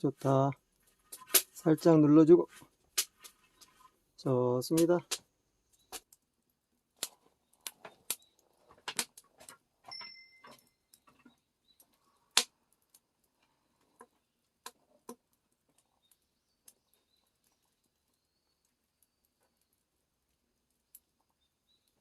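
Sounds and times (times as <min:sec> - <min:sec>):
sharp clicks and taps: 0:04.7 - 0:06.2.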